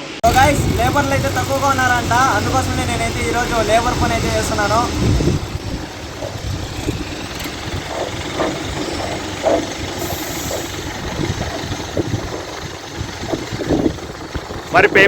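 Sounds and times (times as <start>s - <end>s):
heavy engine idling: 0.0s - 15.0s.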